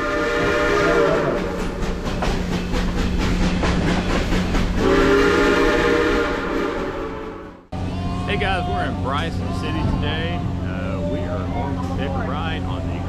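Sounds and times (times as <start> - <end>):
steam locomotive whistle: 0.0 - 1.8, 4.8 - 7.6.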